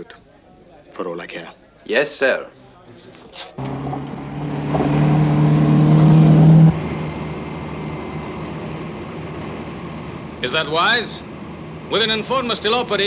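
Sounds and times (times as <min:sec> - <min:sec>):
car engine running: 0:03.6 - 0:12.0.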